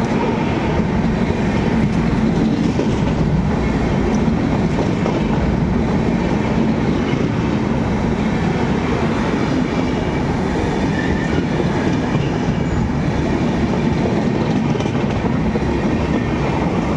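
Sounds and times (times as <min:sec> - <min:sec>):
train wheels rumbling on rails: 0:00.0 - 0:16.9
wheels clacking over rail joints: 0:09.6 - 0:16.8.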